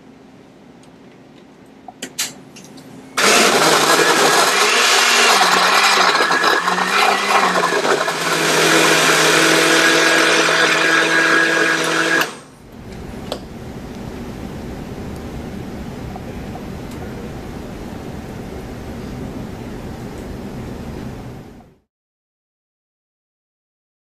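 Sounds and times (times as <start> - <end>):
blender motor running: 3.2 - 12.5.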